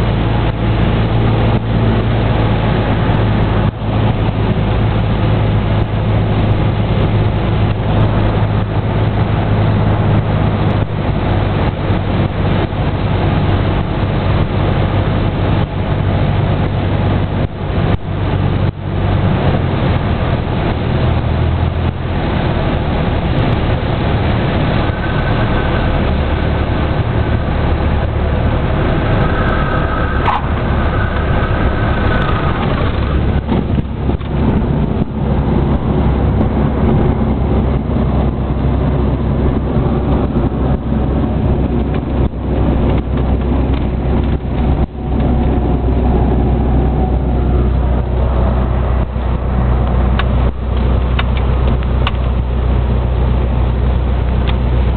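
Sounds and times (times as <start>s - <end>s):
airplane engine and propeller droning: 0.0s - 54.9s.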